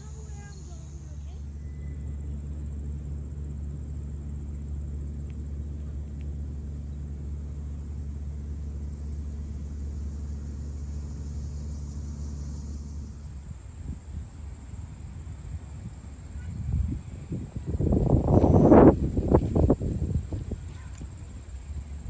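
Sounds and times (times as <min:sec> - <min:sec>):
faint high-pitched tone: 0:00.0 - 0:02.2
low rumble: 0:00.0 - 0:22.0.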